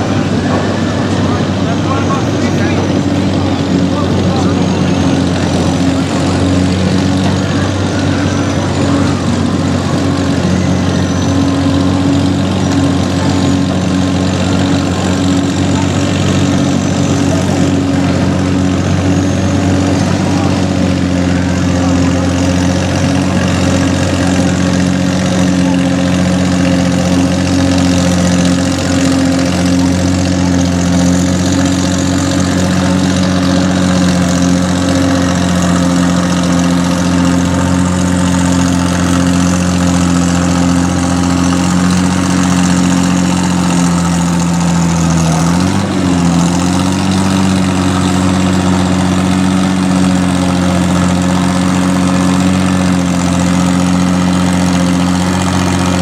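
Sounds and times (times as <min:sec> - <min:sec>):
tractor engine idling: 0:00.0 - 0:56.0.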